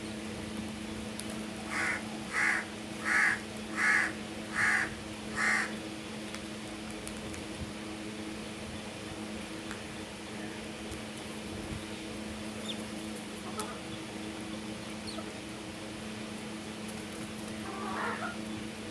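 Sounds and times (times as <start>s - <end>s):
crow cawing: 1.7s - 5.7s.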